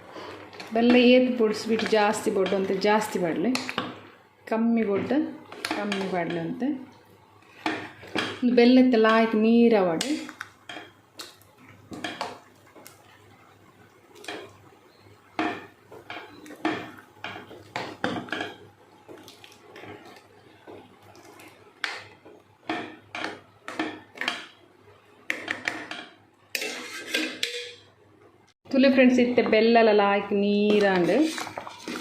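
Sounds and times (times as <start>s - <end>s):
spoon scraping in cooking pot: 25.3s - 27.8s, 30.6s - 32.0s.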